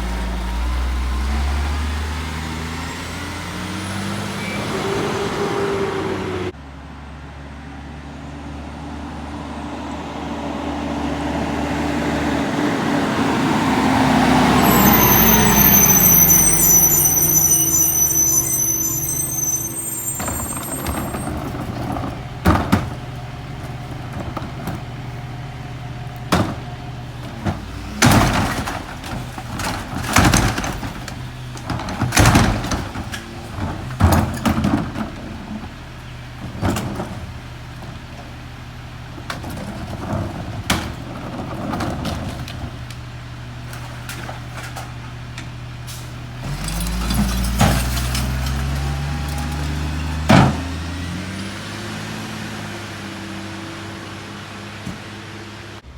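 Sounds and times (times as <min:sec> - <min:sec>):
garbage truck idling: 0:12.3 - 0:55.9
trash banging into hopper: 0:13.7 - 0:25.4, 0:26.1 - 0:38.5, 0:39.1 - 0:51.3.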